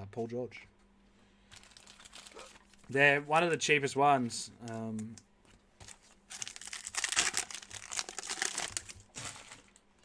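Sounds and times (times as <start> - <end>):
plastic wrapper crinkling and tearing: 1.5 - 2.9, 5.8 - 10.0.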